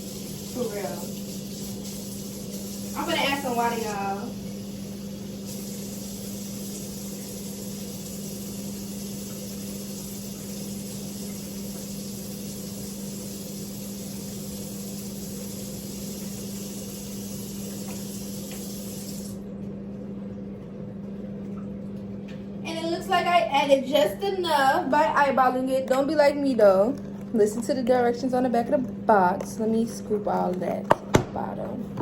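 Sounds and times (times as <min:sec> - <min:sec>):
water running into bowl: 0:00.0 - 0:19.4
steady low hum: 0:19.2 - 0:32.0.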